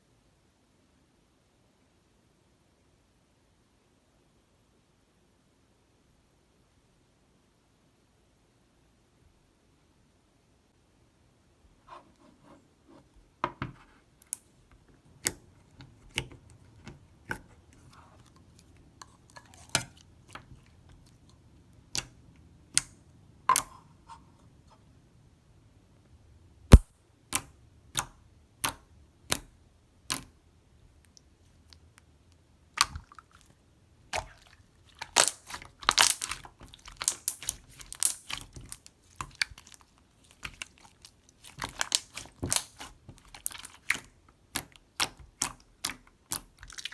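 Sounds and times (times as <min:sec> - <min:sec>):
slime clicking pops: 0:35.1 - 0:36.4, 0:37.0 - 0:38.4.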